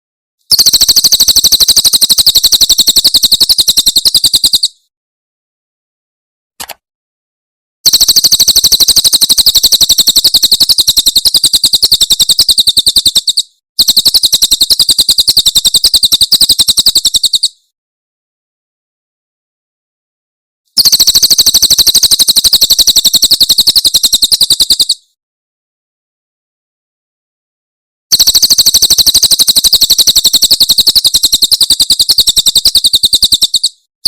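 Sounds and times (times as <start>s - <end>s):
bird singing rapid trill: 0.5s - 4.8s, 7.9s - 17.6s, 20.8s - 25.1s, 28.1s - 33.9s
short bird chirp: 31.1s - 33.9s.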